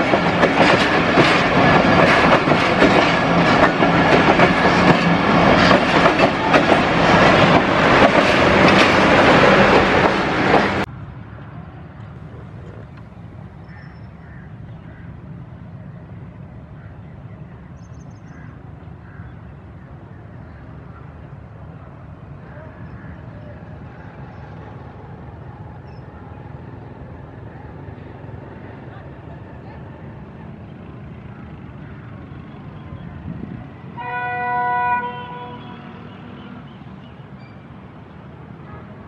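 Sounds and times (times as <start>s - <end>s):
train wheels clattering over joints: 0.0s - 10.9s.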